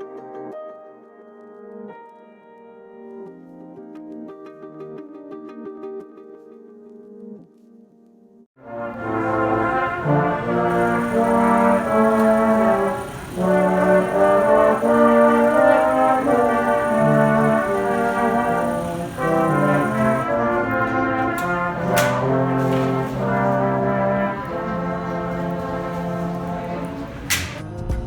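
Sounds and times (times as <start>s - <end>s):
brass melody: 8.6s - 28.0s.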